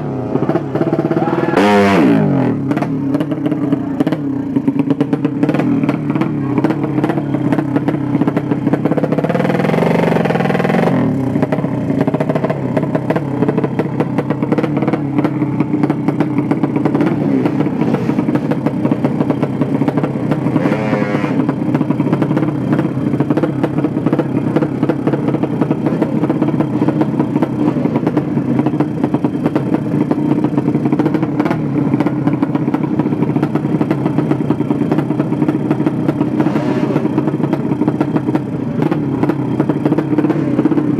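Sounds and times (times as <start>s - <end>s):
racing motorcycle engine: 0.0s - 40.9s.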